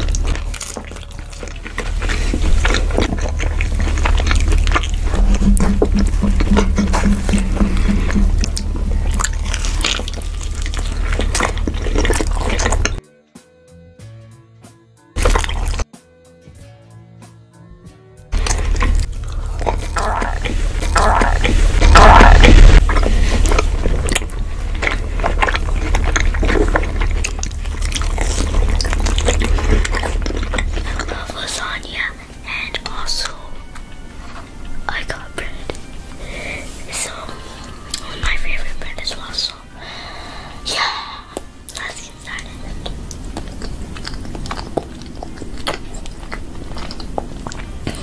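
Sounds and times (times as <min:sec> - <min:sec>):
big bites: 0:00.0 - 0:13.0, 0:15.2 - 0:15.8, 0:18.4 - 0:31.4
steady low hum: 0:00.0 - 0:13.0, 0:18.3 - 0:48.0
wet chewing mouth sounds: 0:00.0 - 0:13.0, 0:15.2 - 0:15.9, 0:18.3 - 0:39.6, 0:40.8 - 0:48.0.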